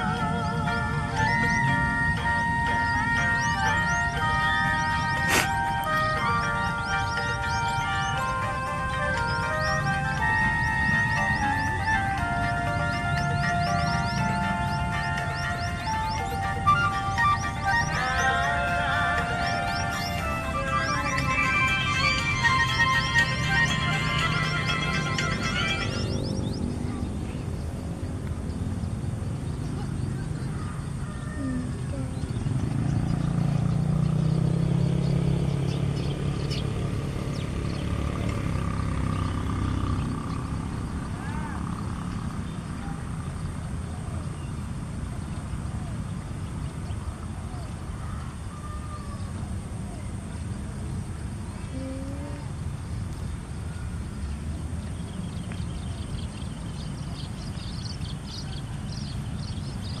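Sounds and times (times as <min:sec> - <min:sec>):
chicks chirping: 0:00.0 - 0:27.6
passing vehicle engine rumble: 0:00.0 - 1:00.0
small birds chirping: 0:00.0 - 1:00.0.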